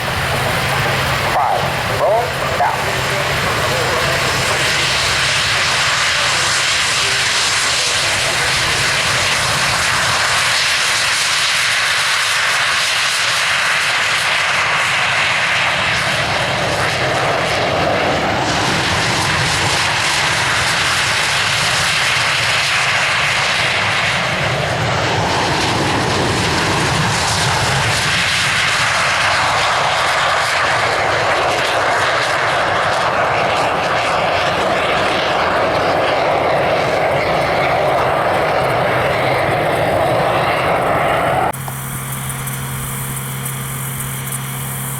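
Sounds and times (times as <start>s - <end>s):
airplane engine flying past: 0.0s - 44.9s.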